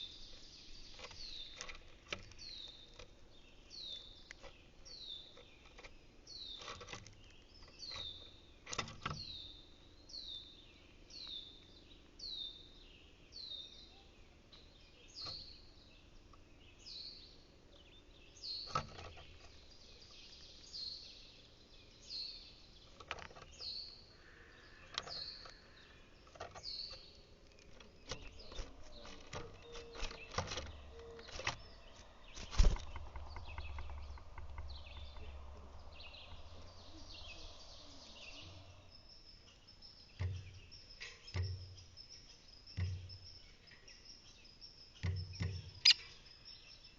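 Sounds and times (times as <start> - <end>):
sharp knocks and taps: 42.7 - 43.2.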